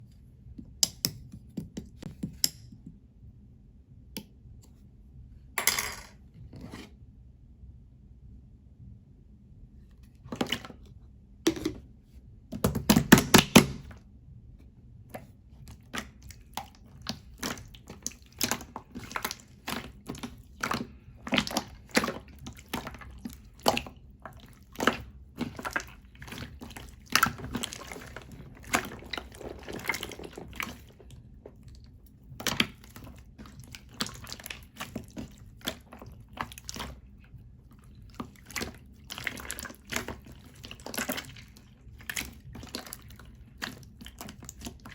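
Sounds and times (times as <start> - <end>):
slime squishing with wet pops: 15.1 - 44.9.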